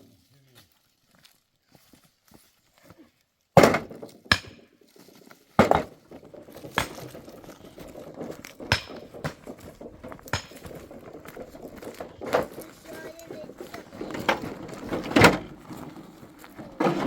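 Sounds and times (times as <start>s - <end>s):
hard objects knocking and clinking: 5.6s - 17.0s
low rustling: 5.6s - 17.0s.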